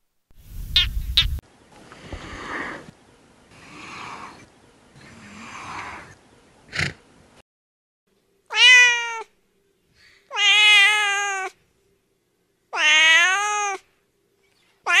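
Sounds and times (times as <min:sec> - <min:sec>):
cat meowing: 0:08.5 - 0:09.3, 0:10.3 - 0:11.6, 0:12.7 - 0:13.8.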